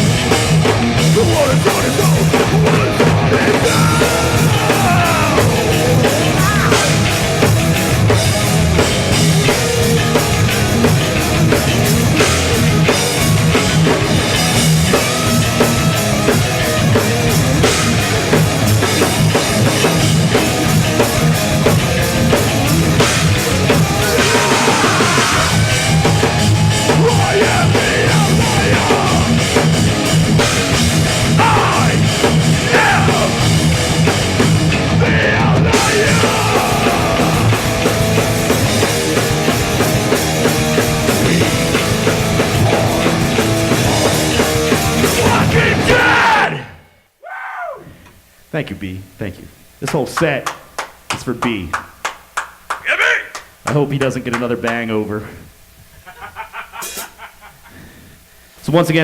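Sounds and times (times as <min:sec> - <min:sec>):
punk band playing: 0:00.0 - 0:46.6.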